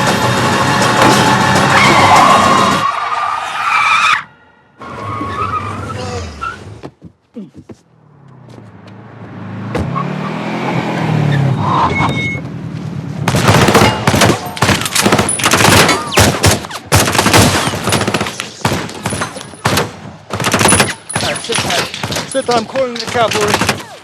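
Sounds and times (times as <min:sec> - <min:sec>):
rapid automatic gunfire: 0:13.3 - 0:22.3, 0:23.1 - 0:23.9.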